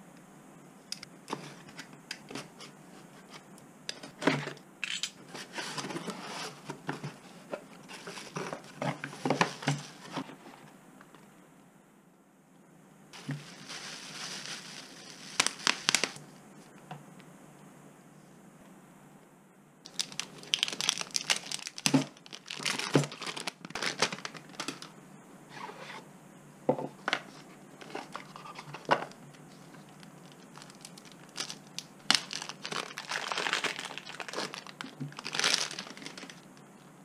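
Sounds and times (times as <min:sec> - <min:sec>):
packaging crinkling and tearing: 0:13.2 - 0:16.2, 0:19.9 - 0:24.9, 0:27.8 - 0:36.5.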